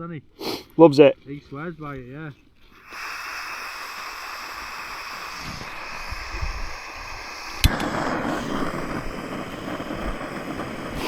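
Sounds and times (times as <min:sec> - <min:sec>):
gas hissing: 0:02.7 - 0:11.0
gas burner rushing: 0:02.8 - 0:11.0
igniter click: 0:07.6 - 0:08.2.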